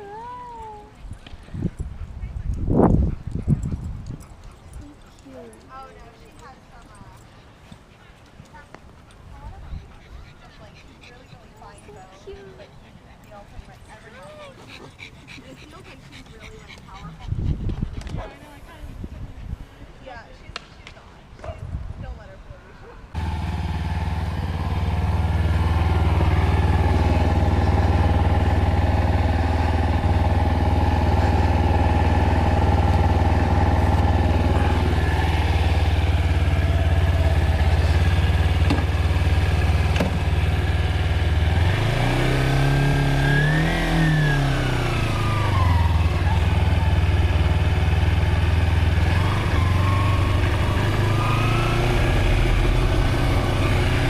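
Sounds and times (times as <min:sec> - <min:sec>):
motorcycle engine revving: 0:23.2 - 0:54.0.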